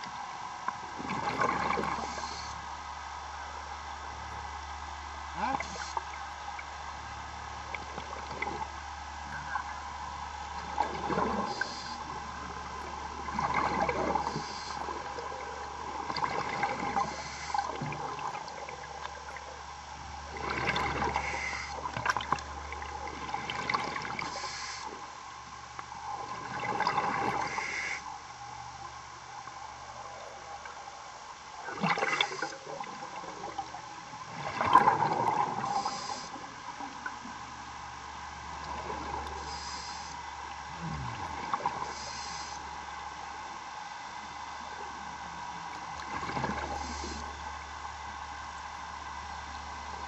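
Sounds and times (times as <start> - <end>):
steady hum: 0.0 - 50.0
diver exhaling bubbles underwater: 1.0 - 2.5, 10.6 - 12.3, 13.2 - 19.3, 20.3 - 24.4, 31.6 - 33.7, 34.3 - 36.2, 40.6 - 42.4.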